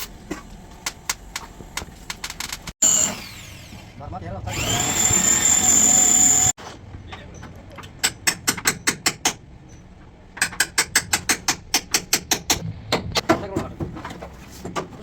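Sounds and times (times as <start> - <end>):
high-pitched power tool running: 2.8 - 6.6.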